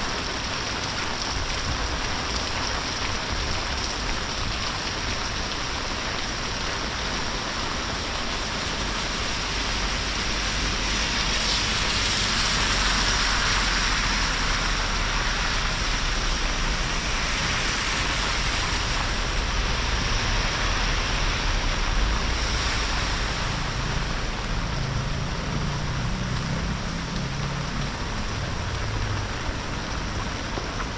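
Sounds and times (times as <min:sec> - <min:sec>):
heavy rain: 0:00.0 - 0:30.9.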